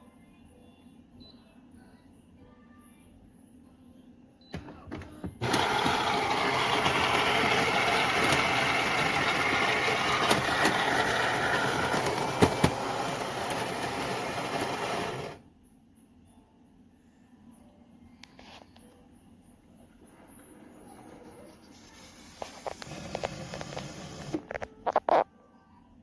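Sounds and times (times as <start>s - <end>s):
espresso machine running: 4.6s - 15.4s, 22.7s - 24.4s.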